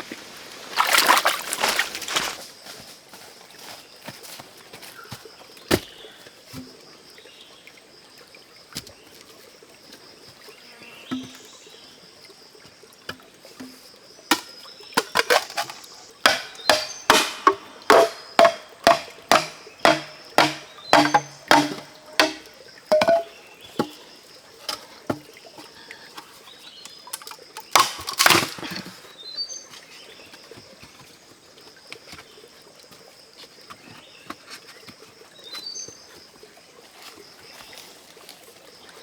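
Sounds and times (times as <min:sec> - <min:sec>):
blade chopping bamboo: 0:14.3 - 0:24.0, 0:27.7 - 0:28.6.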